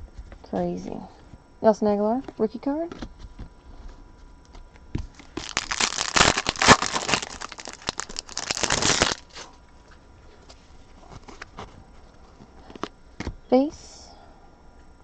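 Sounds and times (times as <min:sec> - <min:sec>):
foil wrapper tearing and crinkling: 0:05.1 - 0:09.5.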